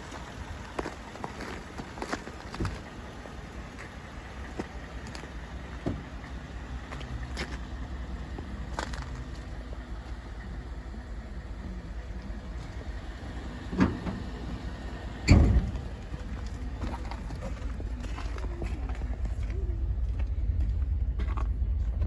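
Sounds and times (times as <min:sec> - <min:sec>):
truck engine idling: 0:00.0 - 0:22.0
loud thump: 0:15.2 - 0:16.0.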